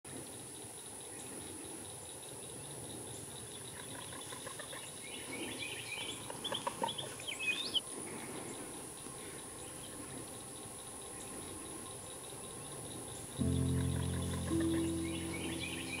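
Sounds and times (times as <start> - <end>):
background hiss: 7.8 - 16.0
birds chirping: 13.4 - 16.0.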